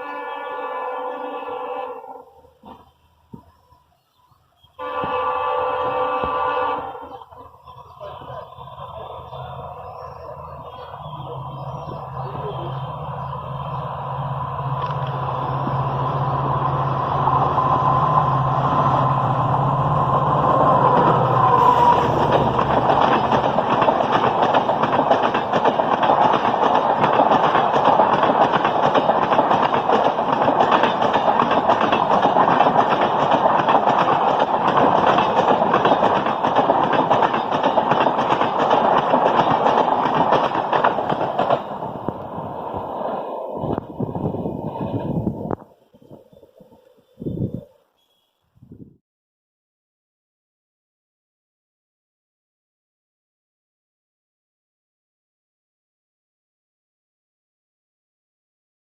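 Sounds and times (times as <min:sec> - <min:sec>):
train horn long blast: 0:00.0 - 0:02.5, 0:04.8 - 0:07.3, 0:20.8 - 0:22.3
wheel clatter over rail joints: 0:22.1 - 0:42.4.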